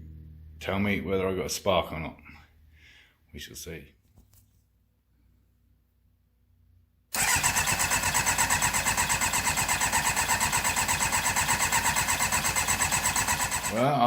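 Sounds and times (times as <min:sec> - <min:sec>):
engine cranking on starter: 0:07.1 - 0:14.0.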